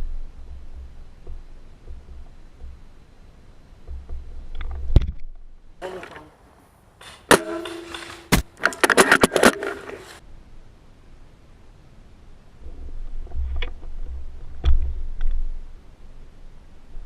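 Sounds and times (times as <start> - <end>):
sharp knocks: 7.0 - 9.8.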